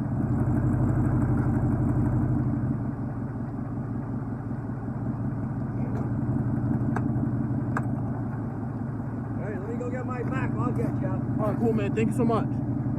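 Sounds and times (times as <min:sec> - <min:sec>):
truck engine running: 0:00.0 - 0:12.9.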